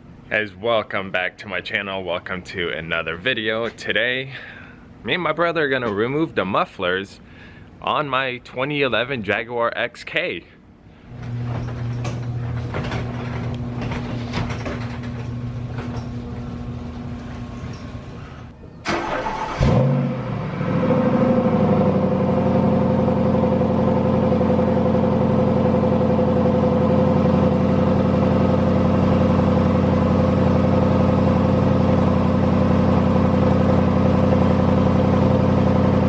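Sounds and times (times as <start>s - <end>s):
car engine starting and idling: 11.2s - 36.0s.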